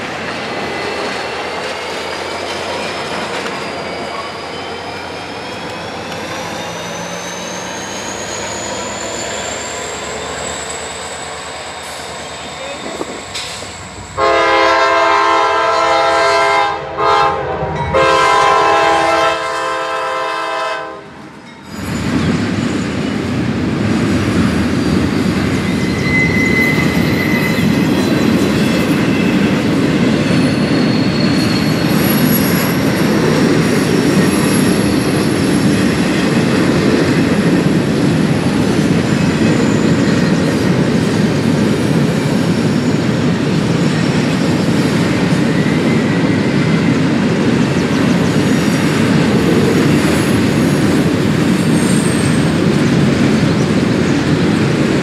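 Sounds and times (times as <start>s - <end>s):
train cars rumbling past: 0.0s - 55.0s
locomotive chime horn blasts: 14.1s - 21.2s.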